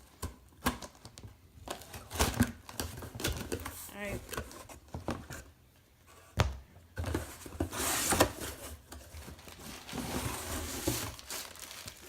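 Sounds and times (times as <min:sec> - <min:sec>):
packaging rustling and tearing: 0:07.7 - 0:12.0.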